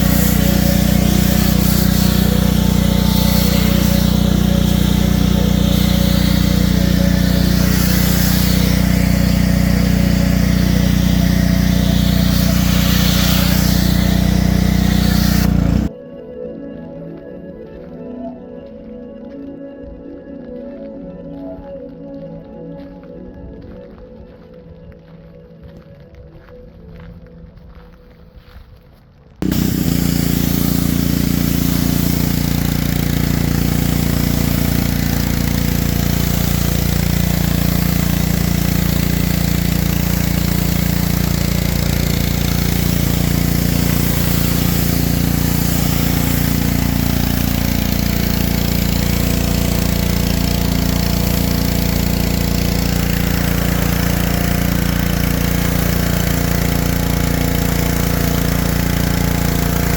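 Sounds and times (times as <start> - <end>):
engine running steadily: 0.0 - 15.9, 29.4 - 59.9.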